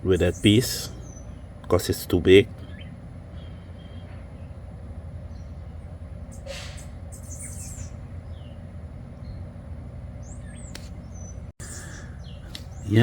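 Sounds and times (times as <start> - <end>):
low background rumble: 0.0 - 13.0
bird chirps and whistled calls: 0.1 - 1.4, 2.6 - 4.6, 6.3 - 9.5, 10.2 - 13.0.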